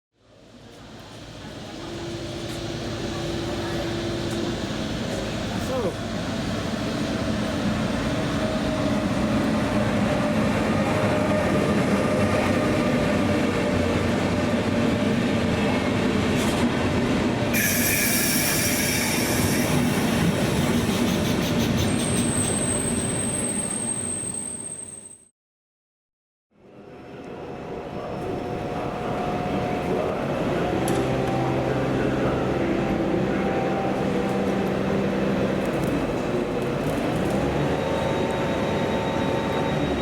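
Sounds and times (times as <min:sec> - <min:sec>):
train wheels rumbling on rail: 0:00.4 - 0:24.1, 0:26.9 - 0:40.0
shrill wheel squeal: 0:17.6 - 0:25.3, 0:37.4 - 0:40.0.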